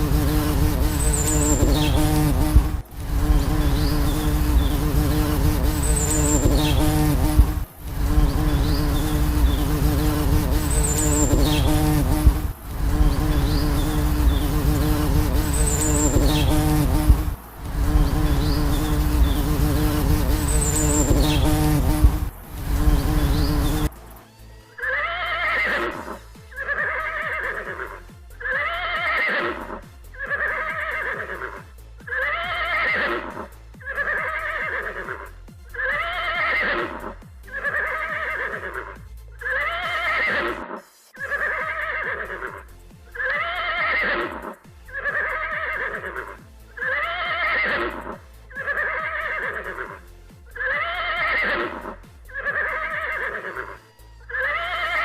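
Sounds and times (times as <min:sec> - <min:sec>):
music with steady beat: 0:00.0 - 0:24.8, 0:25.8 - 0:40.2, 0:40.9 - 0:55.0
looped animal call: 0:24.8 - 0:55.0.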